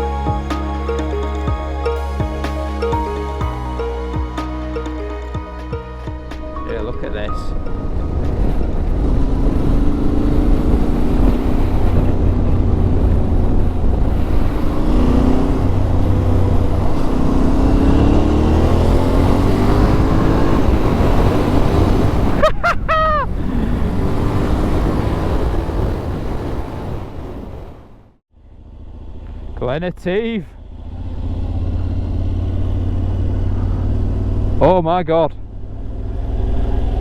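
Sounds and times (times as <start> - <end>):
brief wavering high-pitched sound: 0.0 - 10.0
motorcycle engine running: 28.4 - 37.0.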